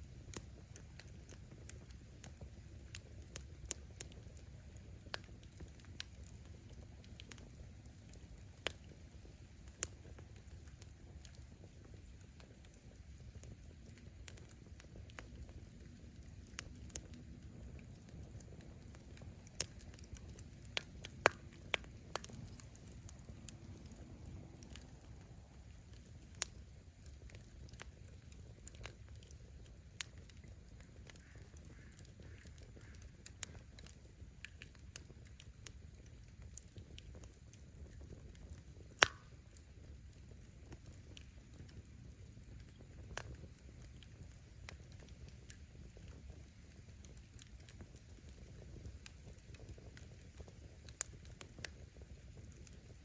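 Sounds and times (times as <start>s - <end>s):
campfire crackling and popping: 0.0s - 53.0s
low steady rumble: 13.2s - 31.0s.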